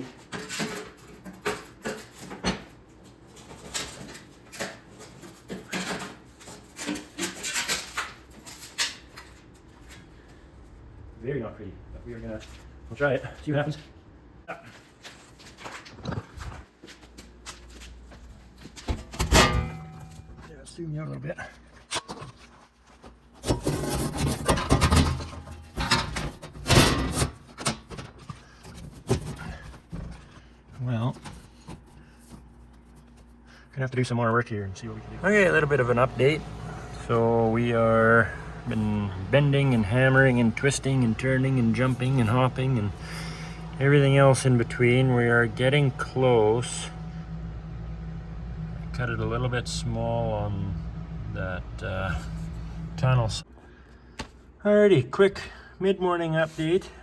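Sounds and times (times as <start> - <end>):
sharp metal knocks: 19.1 - 20.3
sheet metal scraping and clunking: 23.4 - 30.3, 35.1 - 46.1.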